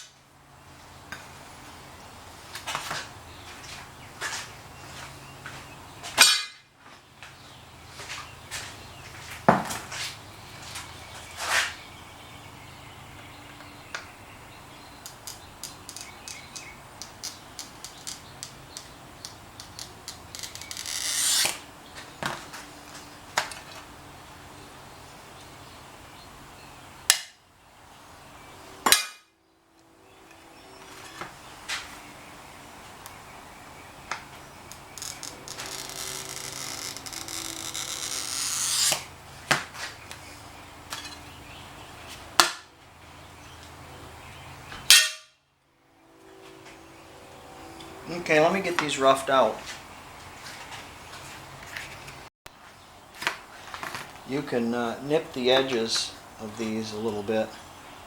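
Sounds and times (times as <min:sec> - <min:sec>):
glass cutter scraping: 0:19.6 - 0:21.6, 0:34.7 - 0:39.1.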